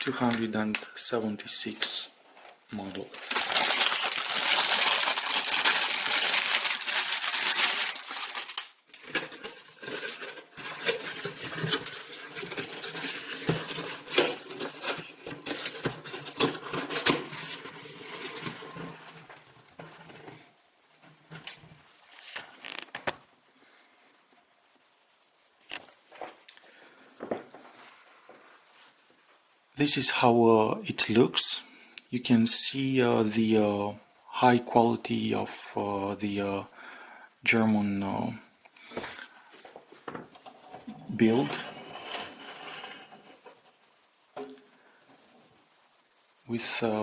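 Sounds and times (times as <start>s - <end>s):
packaging rustling and crinkling: 0.0s - 1.1s, 2.4s - 20.4s, 21.4s - 23.2s.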